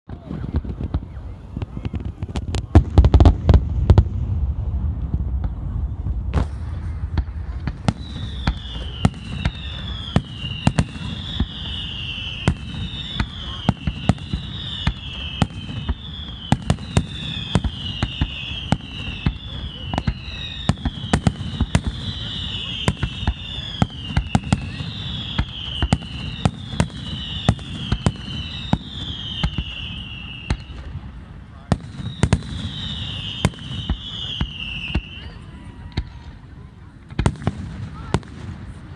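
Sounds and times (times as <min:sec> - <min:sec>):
fireworks bangs and pops: 0:00.1 - 0:38.9
high descending whistle: 0:07.8 - 0:30.7.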